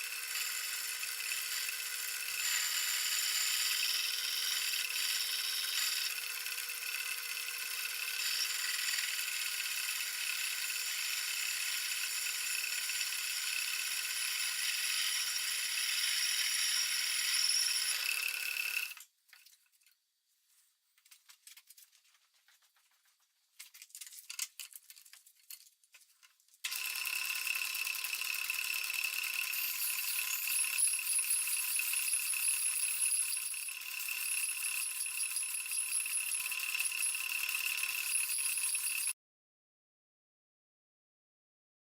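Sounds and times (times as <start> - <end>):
lathe turning metal: 0.0 - 19.0, 26.7 - 39.1.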